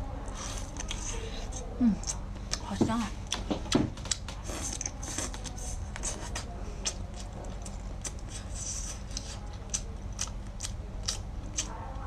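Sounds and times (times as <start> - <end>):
crunching of fried shrimp: 4.0 - 12.0.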